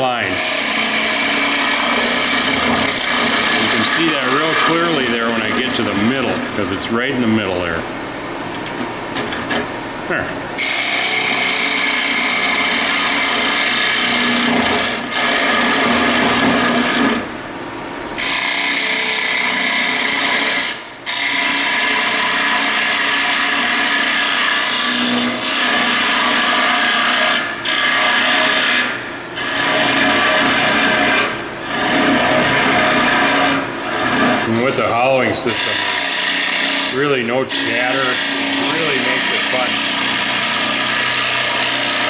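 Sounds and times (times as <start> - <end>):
lathe cutter scraping wood: 0.0 - 7.7, 10.6 - 17.3, 18.2 - 42.0.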